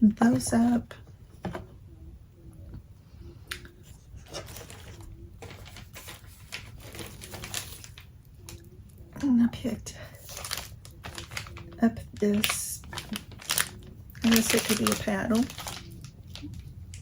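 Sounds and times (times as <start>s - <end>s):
packaging rustling: 4.2s - 8.6s, 10.1s - 17.0s.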